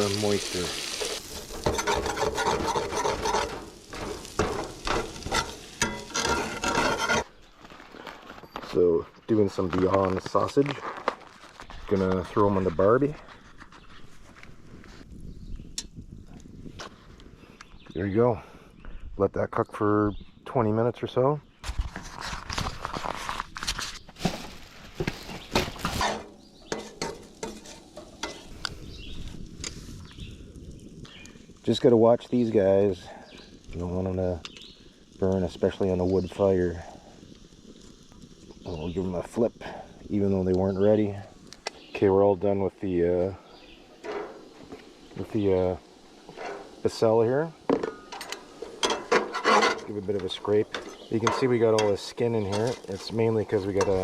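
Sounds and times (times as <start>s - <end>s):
potatoes sizzling in a frying pan: 0.0s - 7.2s, 24.2s - 54.0s
utensil scraping a pan: 0.0s - 7.4s, 21.8s - 28.6s, 46.2s - 47.2s, 47.8s - 54.0s.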